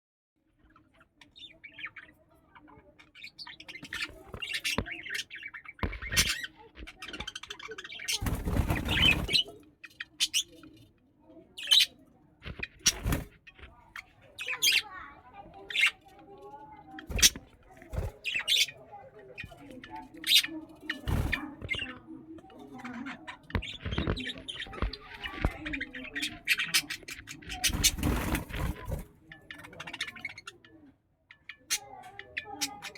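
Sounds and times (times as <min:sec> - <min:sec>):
budgerigars chirping: 0:00.9 - 0:10.8, 0:11.6 - 0:15.0, 0:17.2 - 0:17.4, 0:18.1 - 0:22.0, 0:22.8 - 0:30.7.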